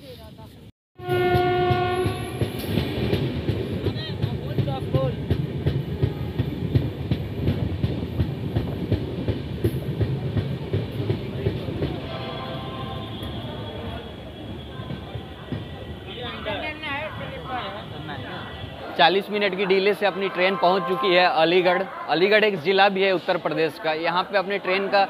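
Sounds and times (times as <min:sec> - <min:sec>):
train horn blast: 0:01.0 - 0:02.6, 0:05.9 - 0:06.5, 0:12.0 - 0:17.2, 0:20.1 - 0:22.6
train wheels clickety-clack: 0:01.2 - 0:12.5, 0:13.1 - 0:17.0.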